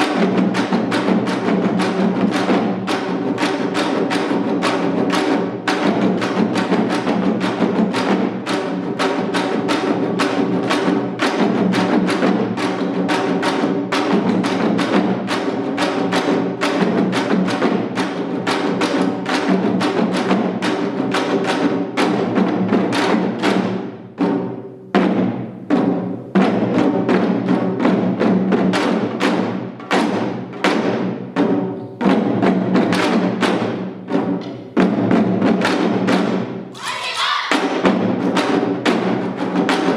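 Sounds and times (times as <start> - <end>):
hourglass drums played rapidly: 0.0 - 39.9.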